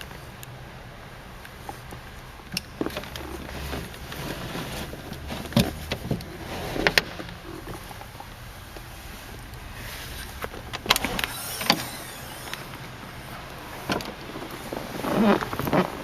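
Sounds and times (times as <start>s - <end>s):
car window glass scraping: 9.8s - 16.0s
window crank clicks: 10.7s - 12.8s.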